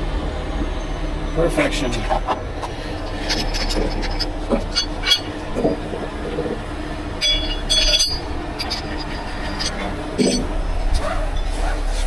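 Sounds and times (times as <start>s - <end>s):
high metallic squeals: 2.6s - 11.7s
metal parts clinking and squeaking: 2.6s - 11.8s.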